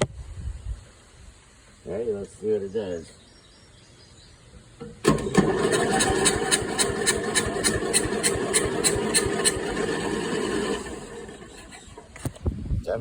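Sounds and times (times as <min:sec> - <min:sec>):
small engine running roughly: 0:05.1 - 0:12.4.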